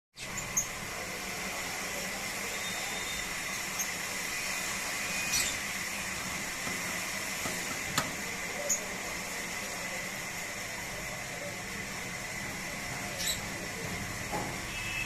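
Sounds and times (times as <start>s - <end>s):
birds chirping: 2.5s - 9.1s, 12.7s - 13.9s.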